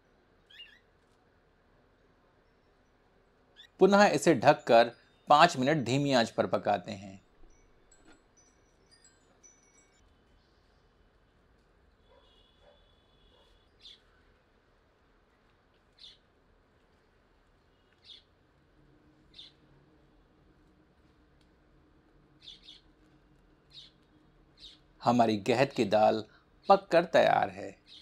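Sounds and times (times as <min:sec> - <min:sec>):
faint bird chirps: 0:00.0 - 0:00.9, 0:02.1 - 0:14.6, 0:15.2 - 0:16.3, 0:17.0 - 0:18.4, 0:19.3 - 0:19.8, 0:22.4 - 0:22.9, 0:23.7 - 0:28.0.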